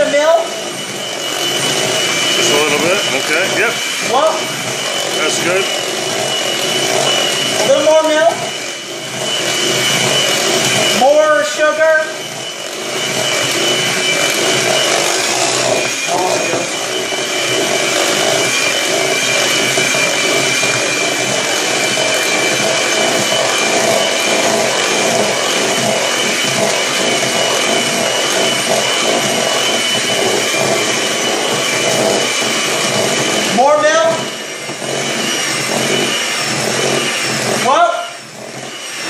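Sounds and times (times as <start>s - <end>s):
electric mixer whining: 0.0s - 39.0s.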